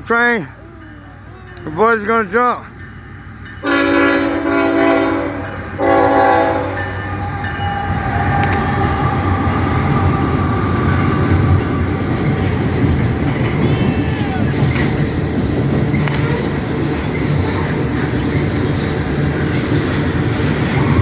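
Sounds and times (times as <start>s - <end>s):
train rumbling past: 0.0s - 21.0s
train horn blasts: 3.6s - 9.1s.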